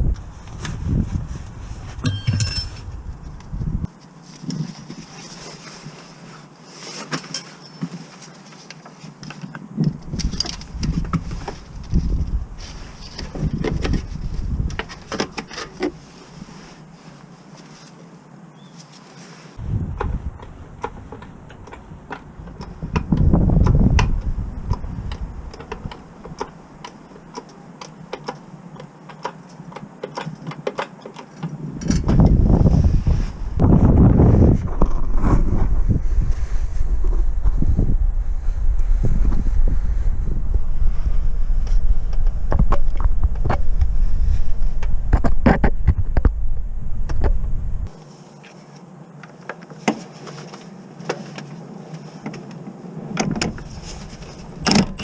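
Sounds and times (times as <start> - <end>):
low rumble: 0.0 - 3.9, 31.9 - 47.9
wind buffeting microphone: 0.0 - 3.9, 9.8 - 15.2, 19.6 - 26.6, 31.6 - 47.9
metallic clinks of tools: 2.0 - 2.9, 7.1 - 8.0.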